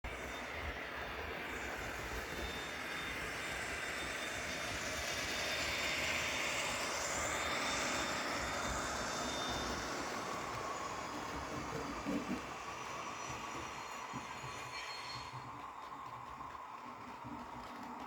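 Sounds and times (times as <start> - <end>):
model train whirring past: 0.1 - 18.0.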